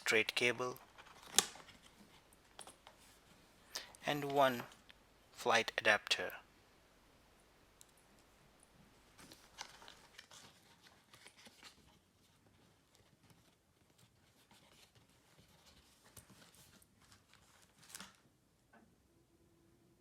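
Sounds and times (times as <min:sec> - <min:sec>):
packaging crinkling and clicking: 0:00.8 - 0:03.0, 0:09.2 - 0:11.8.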